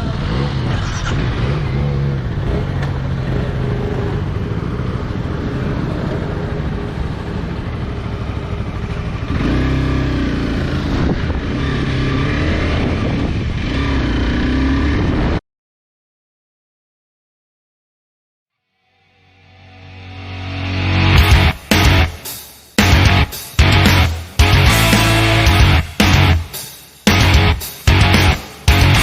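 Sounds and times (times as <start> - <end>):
motorcycle engine running: 0.0 - 15.1, 21.2 - 22.1, 22.8 - 26.5, 27.1 - 29.0.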